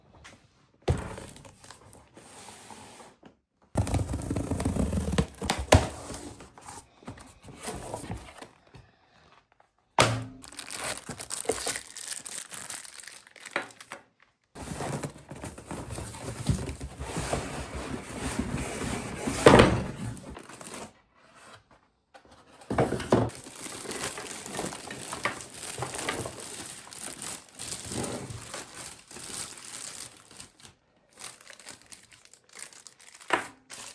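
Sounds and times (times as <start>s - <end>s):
packaging thunks: 3.8s - 6.5s, 22.8s - 33.9s
plastic wrapping crinkling and tearing: 10.4s - 14.2s, 23.3s - 33.9s.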